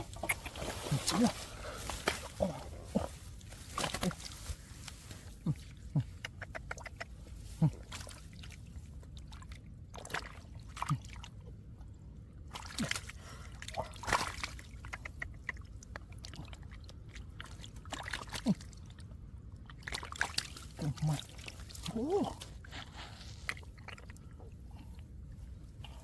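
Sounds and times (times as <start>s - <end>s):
water sloshing and splashing: 0.0s - 26.0s
wet slaps in mud: 14.0s - 15.6s.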